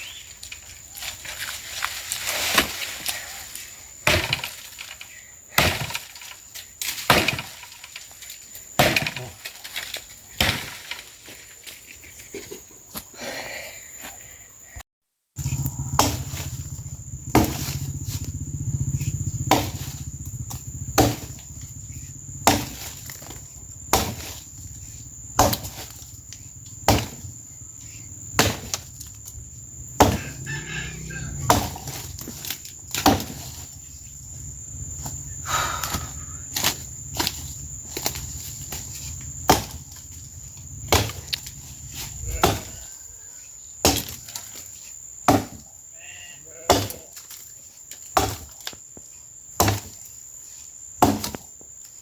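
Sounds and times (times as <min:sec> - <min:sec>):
axe chopping wood: 0:04.0 - 0:08.0, 0:08.8 - 0:11.1, 0:15.9 - 0:16.6, 0:17.2 - 0:18.2, 0:19.4 - 0:21.6, 0:22.3 - 0:24.6, 0:25.3 - 0:27.3, 0:28.3 - 0:29.4, 0:30.0 - 0:33.8, 0:35.9 - 0:40.0, 0:40.8 - 0:42.8, 0:43.8 - 0:44.6, 0:45.2 - 0:45.8, 0:46.7 - 0:47.2, 0:48.0 - 0:48.8, 0:49.5 - 0:50.0, 0:51.0 - 0:51.6
high insect drone: 0:15.4 - 0:52.0.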